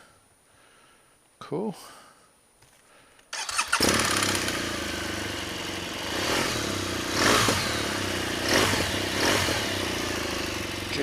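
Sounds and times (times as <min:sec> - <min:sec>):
motorcycle engine starting and idling: 0:03.3 - 0:11.0.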